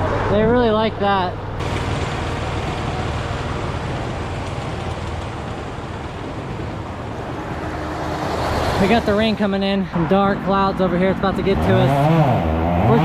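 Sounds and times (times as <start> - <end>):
road traffic noise: 0.0 - 13.0
low engine hum: 1.3 - 13.0.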